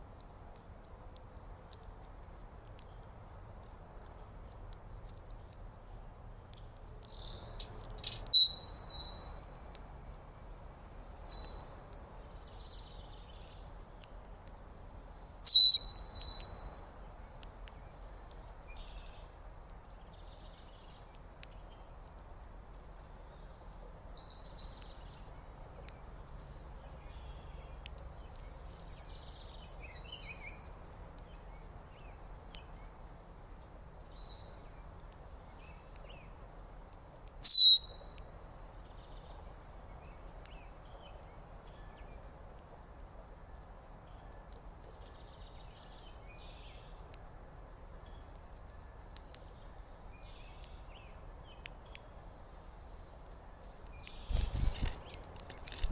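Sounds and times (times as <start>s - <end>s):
low background hiss: 0.0s - 55.9s
faint bird chirps: 6.6s - 9.4s, 15.4s - 16.6s, 37.4s - 38.2s
sharp bird calls dropping in pitch: 37.4s - 38.0s.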